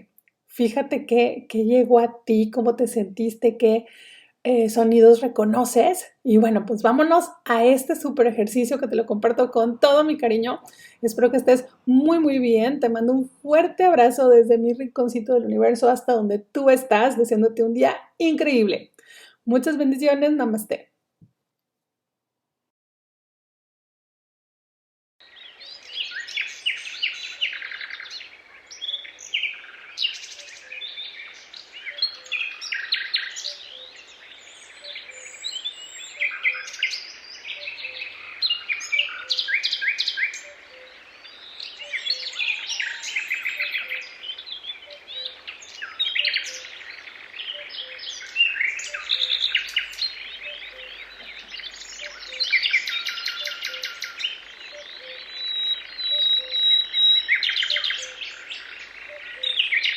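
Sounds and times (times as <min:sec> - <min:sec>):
forest birds singing: 0:00.0 - 0:20.7, 0:25.2 - 0:59.9.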